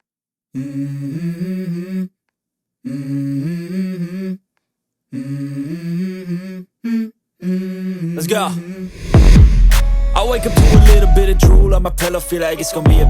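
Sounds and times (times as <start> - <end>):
person humming a melody: 0.6 - 2.2, 2.8 - 4.4, 5.1 - 8.9.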